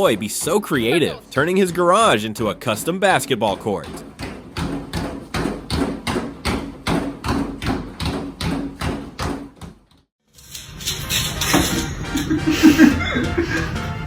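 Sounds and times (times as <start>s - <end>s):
basketball bouncing on floor: 3.8s - 10.0s.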